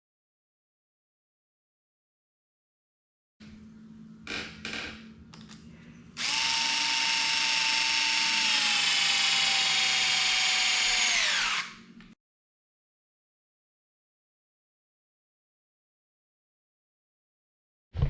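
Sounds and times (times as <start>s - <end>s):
power drill motor whine: 6.2s - 11.9s.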